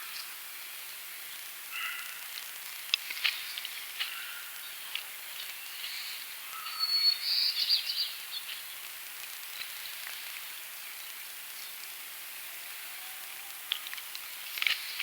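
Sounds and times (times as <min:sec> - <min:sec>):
steady high background hiss: 0:00.0 - 0:15.0
wild birds singing: 0:01.3 - 0:02.2, 0:03.3 - 0:08.8.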